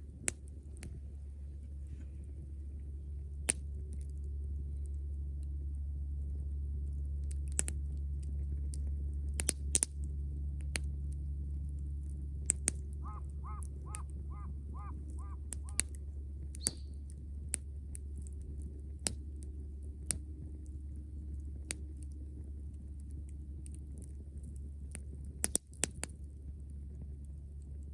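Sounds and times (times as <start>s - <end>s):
campfire crackling and popping: 7.3s - 11.2s, 11.8s - 27.9s
bird calling: 12.9s - 16.0s, 16.6s - 17.0s.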